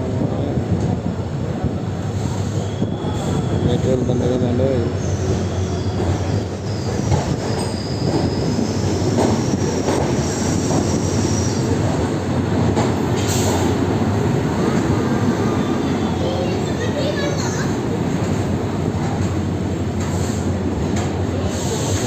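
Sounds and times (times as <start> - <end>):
train wheels rumbling: 0.0 - 22.0
faint high wheel squeal: 2.2 - 9.7
train wheel clacks: 6.9 - 11.2.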